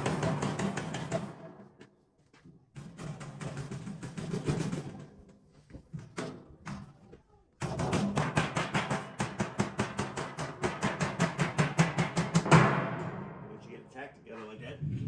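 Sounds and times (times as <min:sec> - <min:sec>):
hammer tapping sheet metal: 0:07.6 - 0:13.4.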